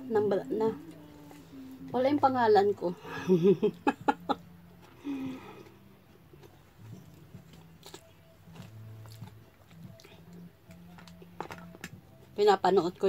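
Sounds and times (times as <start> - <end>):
faint low hum: 0.0 - 13.0
person chewing with smacking clicks: 5.6 - 12.1.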